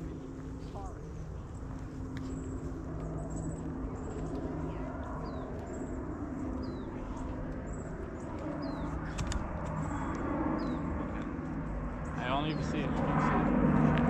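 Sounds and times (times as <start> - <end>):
bird calling: 0.0 - 11.1
steady low hum: 0.0 - 14.0
sharp clicks: 8.3 - 10.2.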